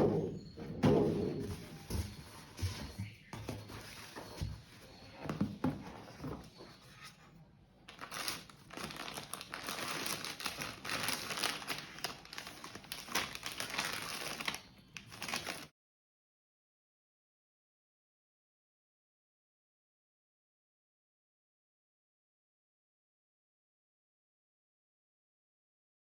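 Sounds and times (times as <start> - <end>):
packaging crinkling: 7.9 - 15.7.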